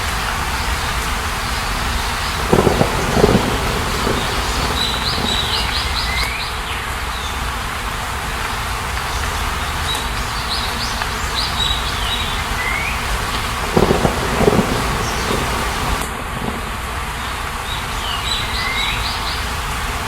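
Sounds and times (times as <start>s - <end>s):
rain hiss: 0.0s - 20.0s
small bird chirping: 2.4s - 6.4s.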